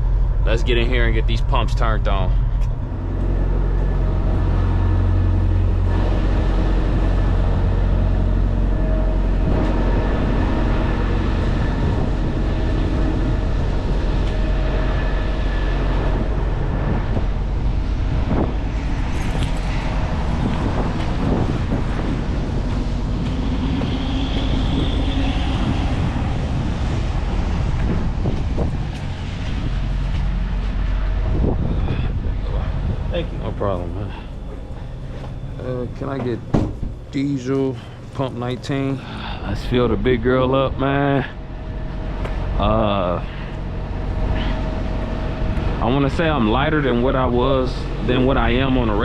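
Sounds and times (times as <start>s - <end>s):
diesel engine idling: 0.0s - 49.0s
sharp knocks: 36.2s - 37.0s.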